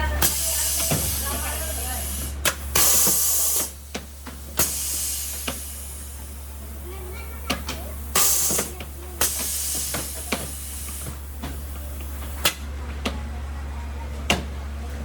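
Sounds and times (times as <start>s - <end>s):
steady low hum: 0.0s - 15.0s
hissing air jet: 0.2s - 12.5s.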